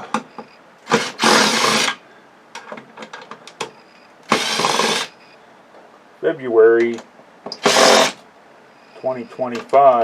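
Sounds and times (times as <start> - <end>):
small power tool bursts: 0.9 - 2.0, 4.3 - 5.1, 7.6 - 8.2.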